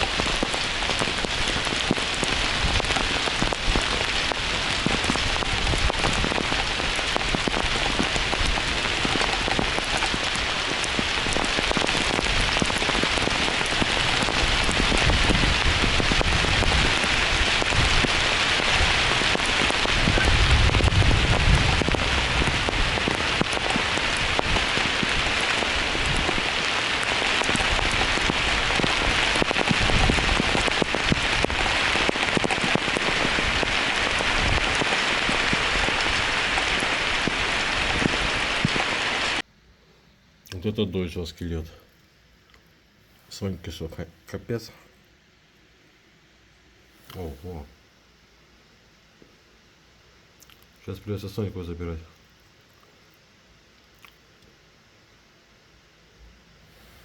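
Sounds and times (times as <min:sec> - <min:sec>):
heavy rain pouring: 0:00.0 - 0:39.4.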